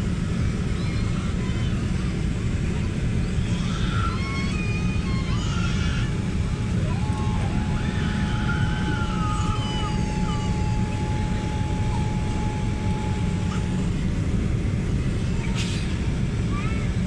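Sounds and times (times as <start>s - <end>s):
airliner cabin rumble: 0.0s - 17.0s
high whine: 4.5s - 15.6s.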